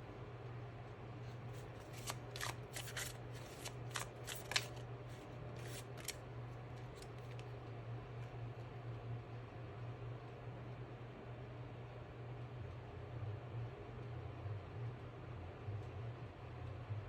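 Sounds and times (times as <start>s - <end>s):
cards being shuffled: 1.6s - 6.2s, 6.8s - 7.5s.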